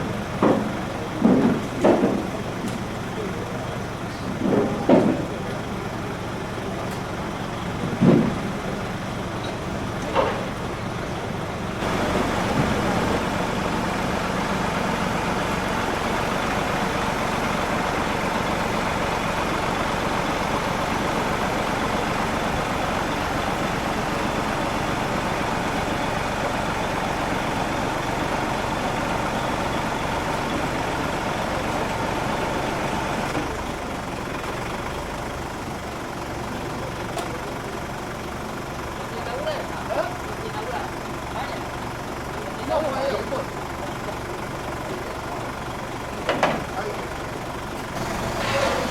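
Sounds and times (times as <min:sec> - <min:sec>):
truck engine running: 0:05.2 - 0:48.9
steady whine: 0:11.8 - 0:18.2.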